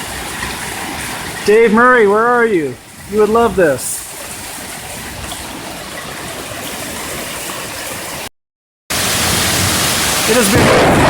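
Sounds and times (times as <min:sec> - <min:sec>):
heavy hail pelting the ground: 0:08.9 - 0:11.0.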